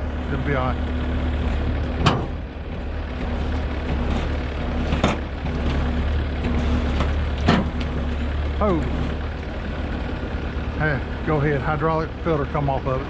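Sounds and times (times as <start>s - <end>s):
truck diesel engine running: 0.0s - 13.0s
winch pulling: 0.0s - 13.0s
sharp knocks: 2.0s - 2.4s.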